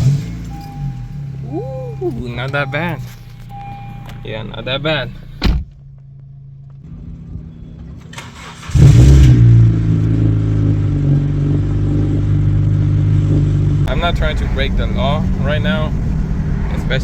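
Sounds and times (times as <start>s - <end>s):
car engine revving and idling: 0.0s - 17.0s
engine cranking: 7.8s - 9.4s.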